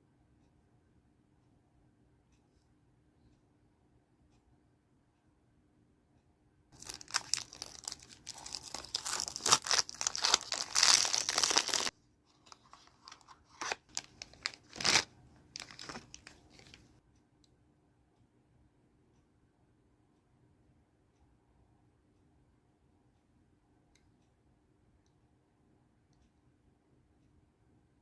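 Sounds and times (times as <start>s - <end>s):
packaging crinkling and tearing: 6.8s - 11.9s, 12.5s - 16.8s.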